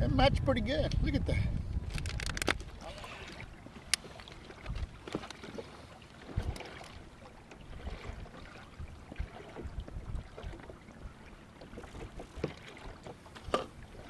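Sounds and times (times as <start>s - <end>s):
wind on microphone: 0.0s - 5.2s, 6.2s - 14.0s
water slapping against kayak hull: 1.8s - 14.0s
knocks on hull: 12.2s - 12.8s.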